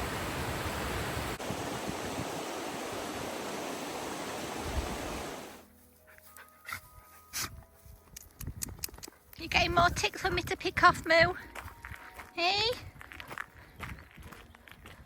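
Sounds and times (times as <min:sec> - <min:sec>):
waterfall rushing: 0:00.0 - 0:05.6.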